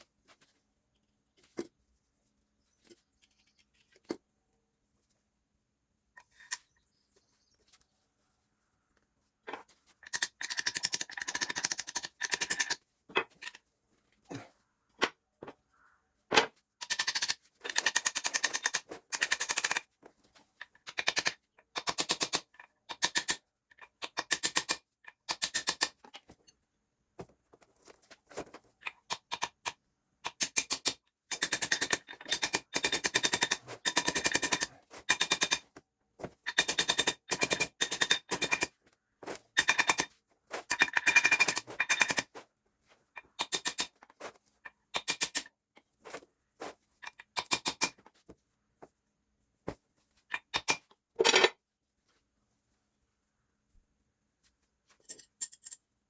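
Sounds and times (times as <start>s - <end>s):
tool rattling clicks: 10.0s - 13.6s.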